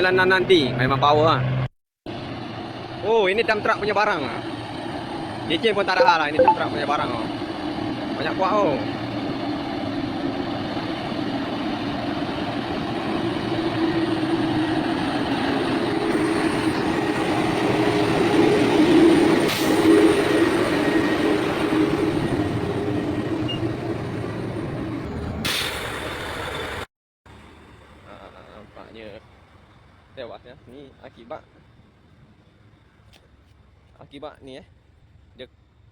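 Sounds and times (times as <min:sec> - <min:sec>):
dump truck engine rumble: 0:08.8 - 0:30.9.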